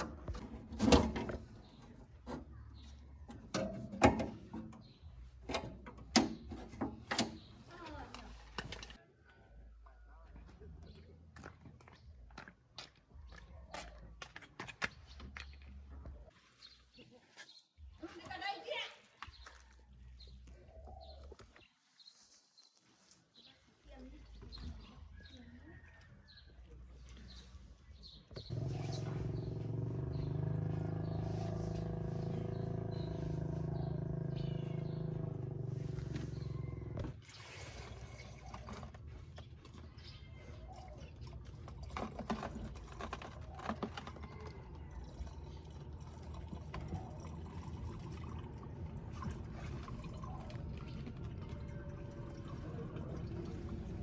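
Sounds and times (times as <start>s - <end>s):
low engine drone: 28.5s - 37.1s, 45.0s - 54.0s.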